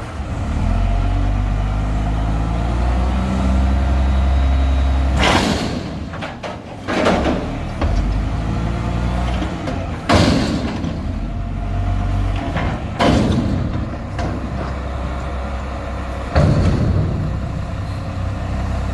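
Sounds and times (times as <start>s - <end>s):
garbage truck diesel engine: 0.0s - 18.9s
loud metal clanks and bangs: 5.0s - 18.9s.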